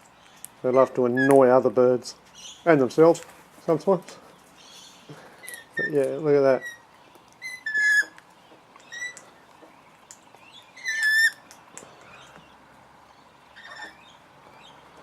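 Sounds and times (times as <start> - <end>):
parrots squawking: 4.8 - 8.2, 8.8 - 9.2, 10.7 - 11.5, 13.5 - 14.2.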